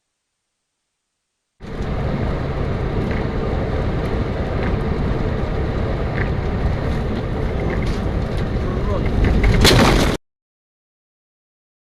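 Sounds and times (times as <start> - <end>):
car road and engine noise: 1.6 - 10.2.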